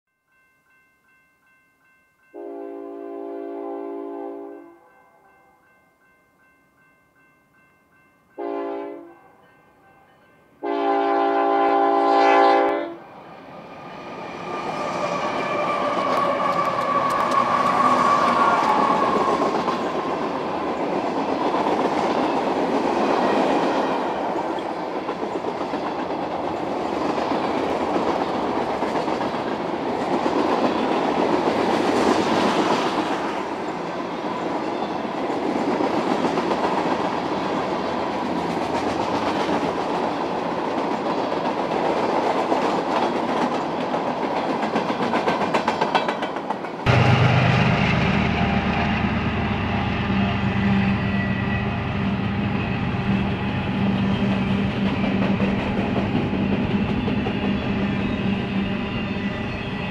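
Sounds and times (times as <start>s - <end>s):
train horn blasts: 2.4s - 5.0s, 8.3s - 9.4s, 10.6s - 13.0s
train wheels rumbling on rails: 13.2s - 59.9s.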